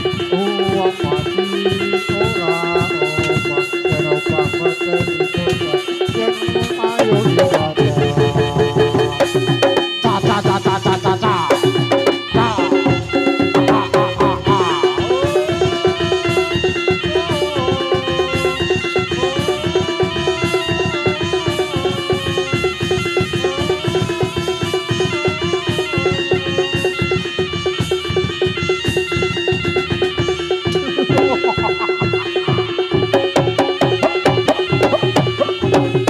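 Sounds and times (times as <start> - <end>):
steady held tone: 0.0 - 28.1, 29.0 - 36.0
fast dense drumming: 0.0 - 36.0
reed pipe melody: 0.0 - 36.0.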